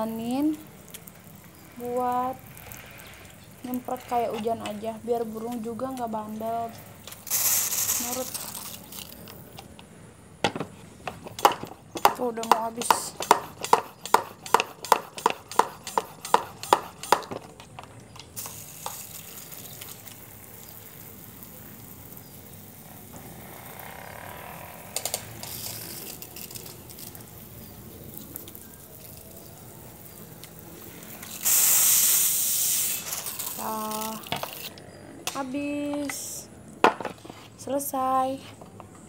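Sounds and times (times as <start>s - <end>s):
spray bottle squirting water: 0.6s - 9.8s, 11.1s - 23.1s, 25.0s - 34.7s
spray bottle hissing: 7.0s - 9.5s, 12.4s - 17.3s, 18.3s - 23.4s, 30.0s - 34.7s.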